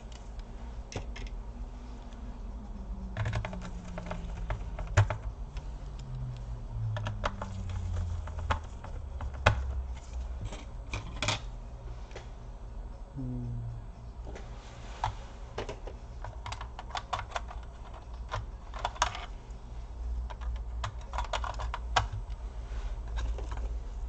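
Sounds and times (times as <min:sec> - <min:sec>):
faint low wavering hum: 0:00.0 - 0:24.0
clicks and taps of laptop parts: 0:03.1 - 0:06.3, 0:06.9 - 0:11.4.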